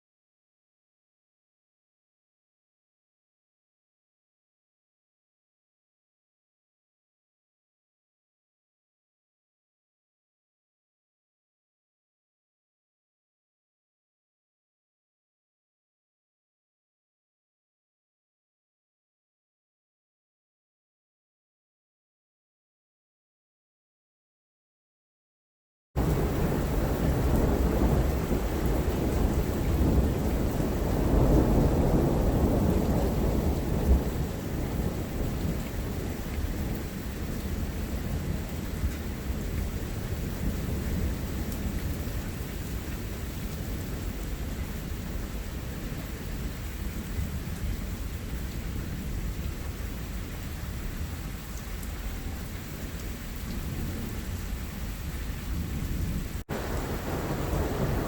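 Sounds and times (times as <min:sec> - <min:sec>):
rolling thunder: 0:26.0 - 0:42.2, 0:55.4 - 0:58.0
steady rain: 0:26.0 - 0:58.0.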